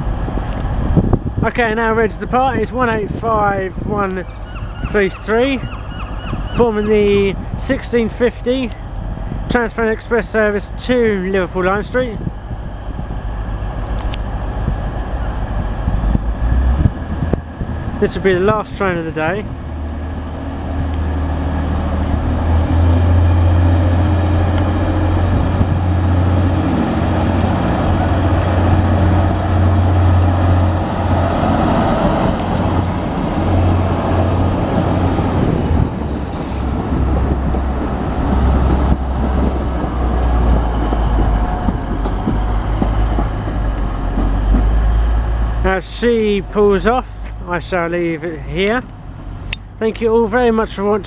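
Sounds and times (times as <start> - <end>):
train diesel engines droning: 0.0 - 51.0
faint high wheel squeal: 35.2 - 36.8.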